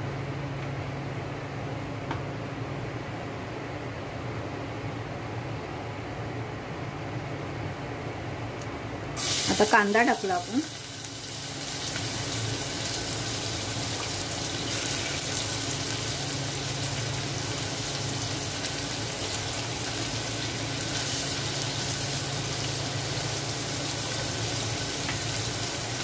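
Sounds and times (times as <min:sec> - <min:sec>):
onion sizzling in oil: 0:09.2 - 0:26.0.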